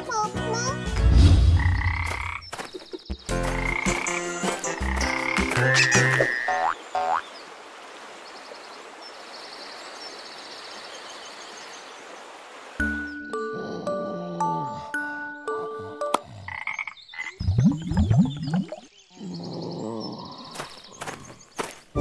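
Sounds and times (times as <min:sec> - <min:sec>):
frogs croaking: 0:01.6 - 0:13.0, 0:16.2 - 0:17.4, 0:18.4 - 0:21.8.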